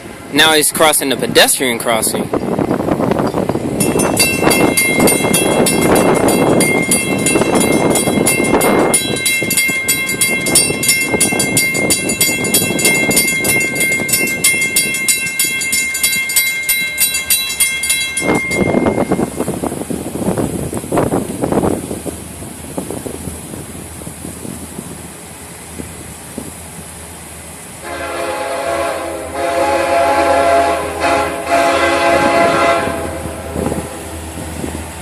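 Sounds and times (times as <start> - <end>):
freight train rumbling past: 0.0 - 35.0
warning bell dinging: 3.8 - 19.3.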